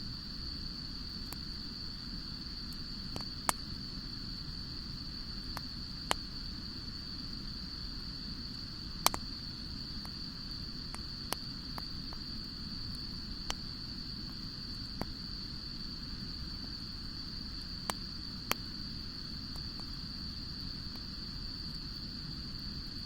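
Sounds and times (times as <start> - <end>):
steady high-pitched whine: 0.0 - 23.0
wood fire crackling: 8.2 - 21.8.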